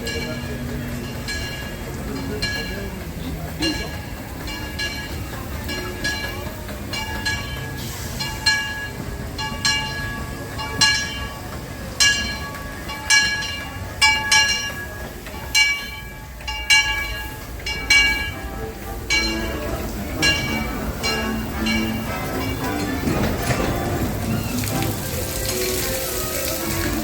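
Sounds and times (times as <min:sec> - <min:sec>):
locomotive bell ringing: 0:00.0 - 0:27.0
train rumbling: 0:00.0 - 0:27.0.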